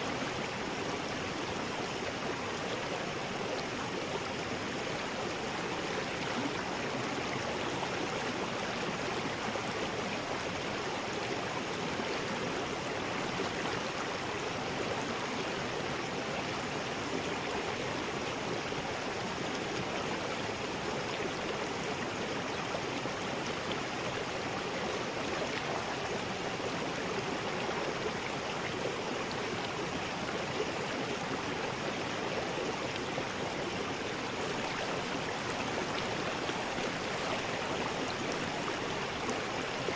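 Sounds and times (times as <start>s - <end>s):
water rushing over rocks: 32.8s - 39.9s.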